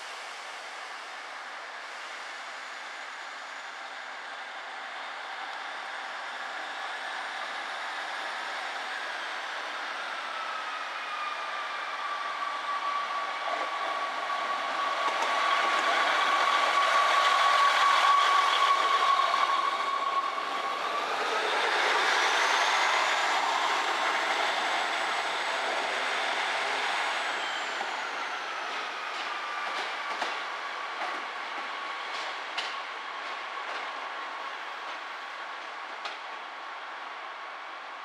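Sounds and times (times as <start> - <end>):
train moving: 0.1 - 38.0.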